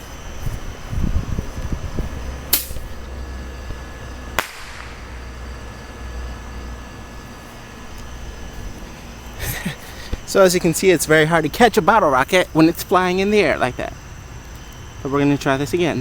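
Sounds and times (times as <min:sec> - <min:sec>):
bottle rocket bangs: 0:04.4 - 0:05.1.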